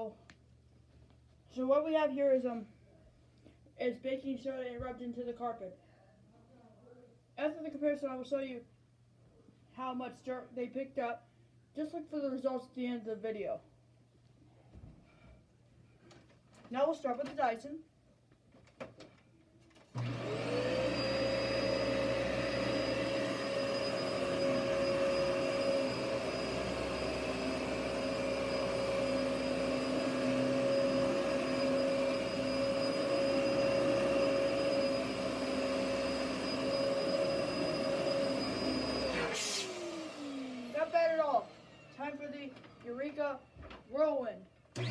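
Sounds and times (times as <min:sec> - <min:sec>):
vacuum cleaner motor whine: 0:20.0 - 0:42.8.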